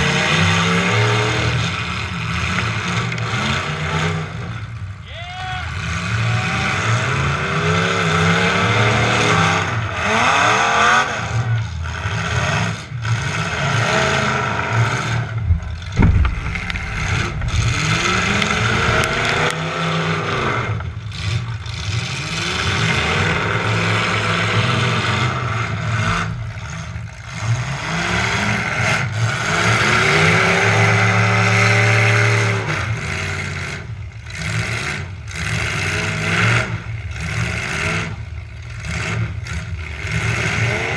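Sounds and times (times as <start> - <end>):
truck engine revving: 5.7 - 40.9
hard crash: 15.3 - 20.5.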